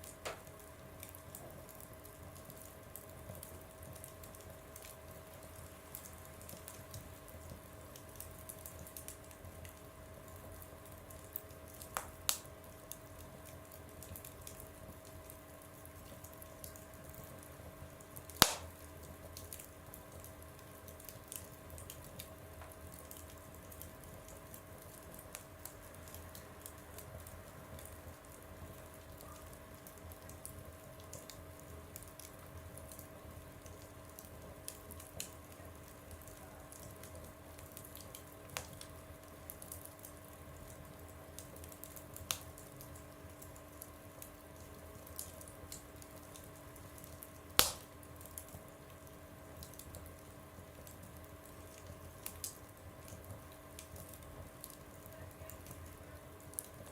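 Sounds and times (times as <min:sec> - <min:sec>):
faint steady hum: 0:00.0 - 0:56.9
wood fire crackling: 0:00.0 - 0:56.9
loud fire pop: 0:18.4 - 0:18.8, 0:47.6 - 0:48.0.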